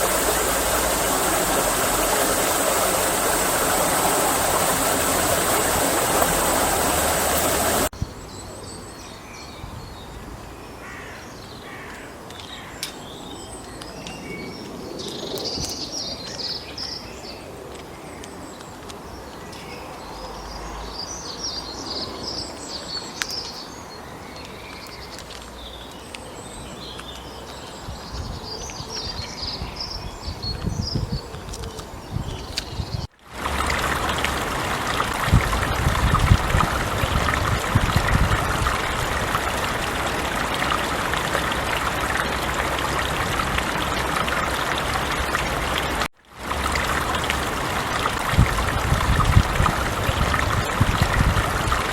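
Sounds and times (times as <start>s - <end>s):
stream water rushing: 0.0s - 7.9s, 33.2s - 51.9s.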